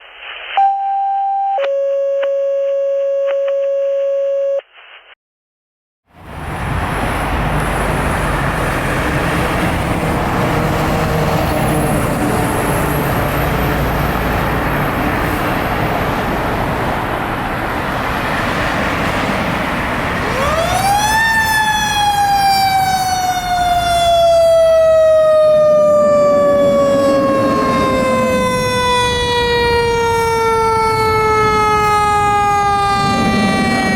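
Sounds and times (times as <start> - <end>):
siren winding up and down: 0.5 - 4.6, 20.3 - 33.9
paging tones: 0.6 - 4.6
fire engine running: 6.2 - 33.9.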